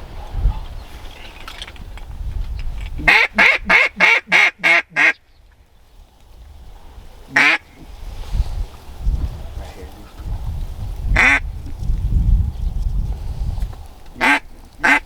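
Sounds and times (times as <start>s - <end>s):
duck quacking: 3.0s - 5.2s, 7.3s - 7.6s, 11.2s - 11.4s, 14.2s - 15.0s.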